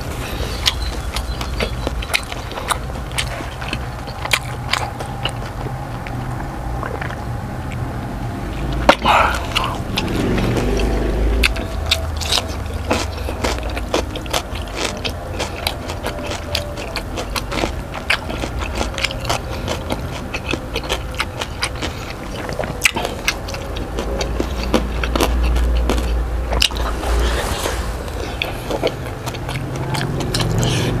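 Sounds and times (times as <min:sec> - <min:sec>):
person chewing: 0:00.0 - 0:31.0
wet mouth clicks and smacks: 0:00.7 - 0:07.8.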